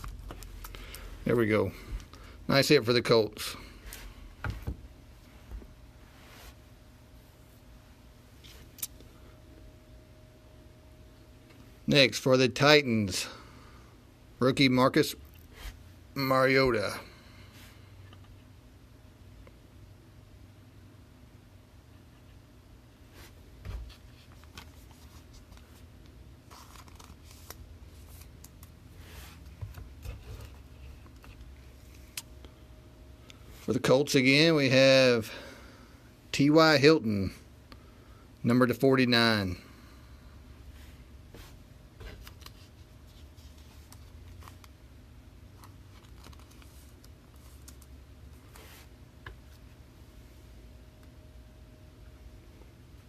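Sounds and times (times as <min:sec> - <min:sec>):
low steady hum: 0:00.0 - 0:53.0
cards rustling and scraping: 0:23.2 - 0:32.2, 0:40.8 - 0:44.8, 0:45.5 - 0:49.7.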